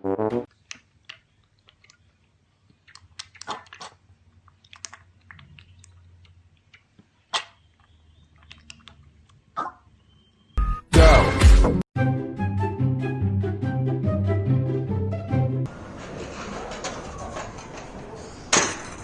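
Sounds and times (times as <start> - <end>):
chewing and crunching: 0.5 - 9.5
music: 10.6 - 15.7.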